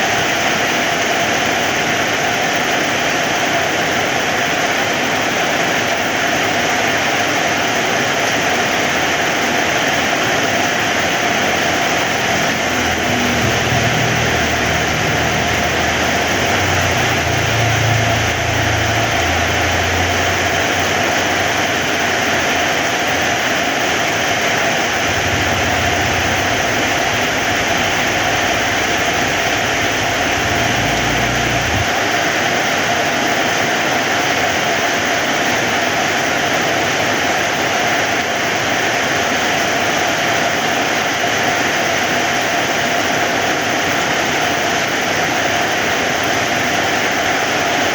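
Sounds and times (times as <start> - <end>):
heavy rain falling: 0.0 - 47.9
low rumble: 11.2 - 23.4, 24.2 - 32.2.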